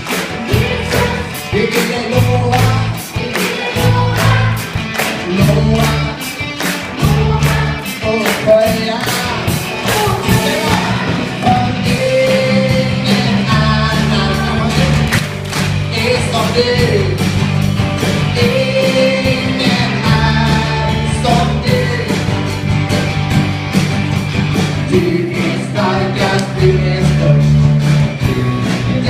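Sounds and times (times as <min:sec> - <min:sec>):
group singing: 0:00.0 - 0:17.0, 0:18.2 - 0:22.5, 0:24.8 - 0:29.0
bass: 0:00.0 - 0:29.0
drum beat: 0:00.0 - 0:29.0
upbeat worship song: 0:00.0 - 0:29.0.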